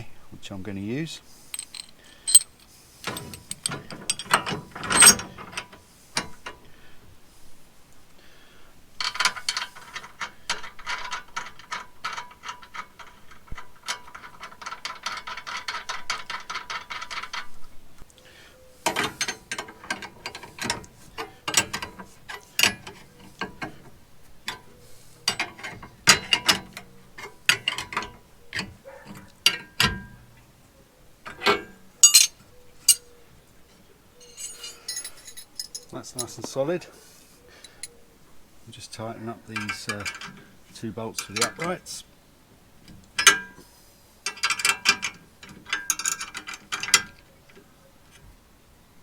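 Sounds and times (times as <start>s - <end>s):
metal clinks: 1.5s - 5.2s, 32.0s - 33.0s, 34.2s - 36.5s
ratchet wrench clicking: 1.6s - 4.2s.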